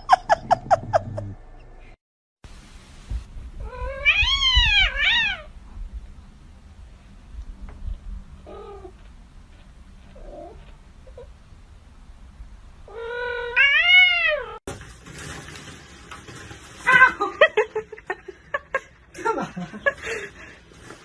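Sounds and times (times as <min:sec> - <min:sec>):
cat meowing: 0:03.6 - 0:05.5, 0:12.9 - 0:14.6.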